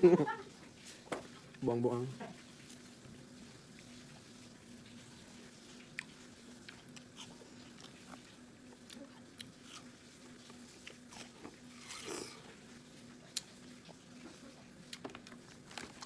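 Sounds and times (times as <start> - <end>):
faint steady hum: 0.0 - 16.0
biting and chewing: 13.2 - 16.0.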